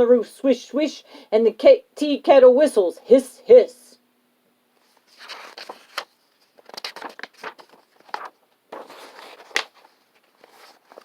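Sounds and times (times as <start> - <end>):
paper pages rustling: 4.8 - 11.0
paper snap: 5.2 - 9.9.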